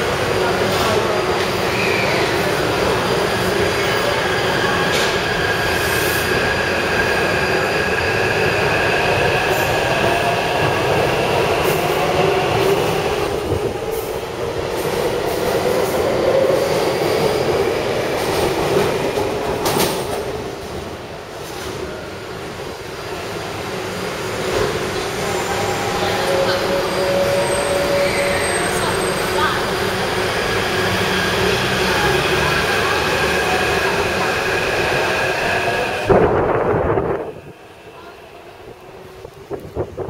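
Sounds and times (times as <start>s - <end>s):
train running on track: 0.0s - 40.0s.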